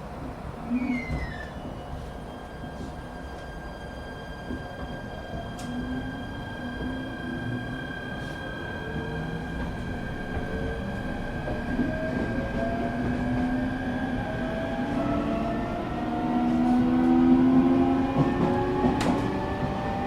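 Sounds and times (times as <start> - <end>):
train wheels rumbling: 4.3 - 20.0.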